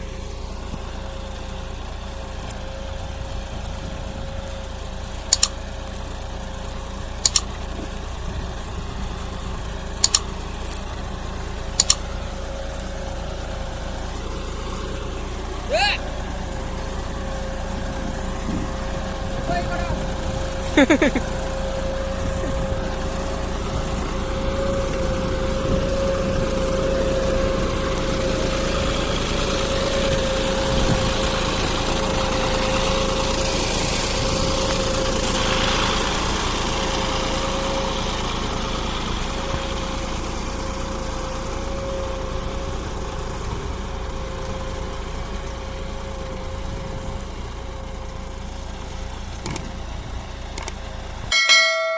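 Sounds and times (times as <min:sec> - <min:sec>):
tractor diesel engine running: 0:00.0 - 0:51.9
high whine: 0:51.3 - 0:51.9.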